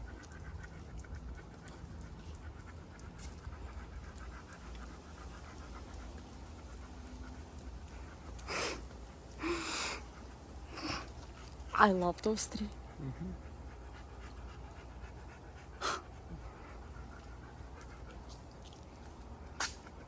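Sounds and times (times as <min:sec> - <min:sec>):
dog panting: 0:00.0 - 0:20.0
breathy huffs: 0:08.4 - 0:11.2, 0:15.7 - 0:16.9.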